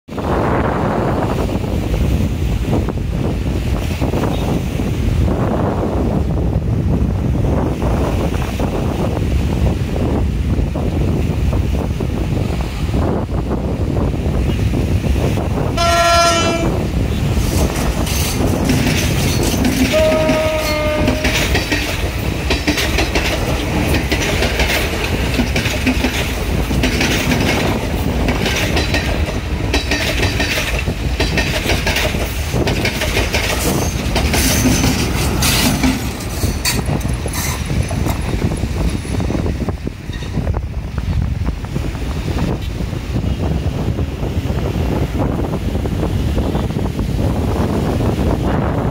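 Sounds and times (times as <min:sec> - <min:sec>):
train rumble: 0:00.1 - 0:48.9
train horn blasts: 0:15.8 - 0:16.9, 0:19.8 - 0:21.7
wheels clacking over rail joints: 0:17.2 - 0:40.5.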